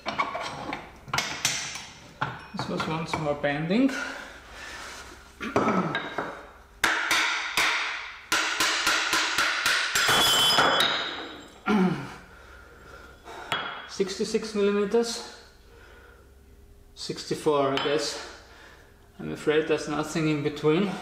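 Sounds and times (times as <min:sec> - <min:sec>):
metal tools clanking on metal: 0:00.0 - 0:03.3, 0:10.0 - 0:11.6.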